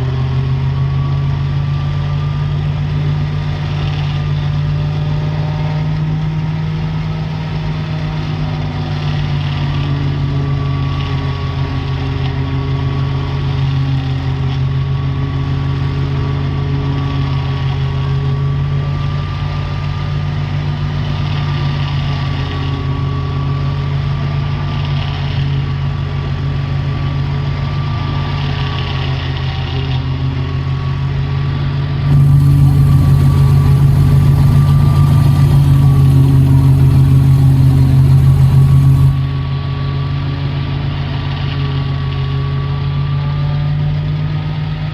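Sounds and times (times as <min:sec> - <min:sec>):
tractor engine running: 0:32.1 - 0:39.5
thin wavering whine: 0:32.1 - 0:39.6.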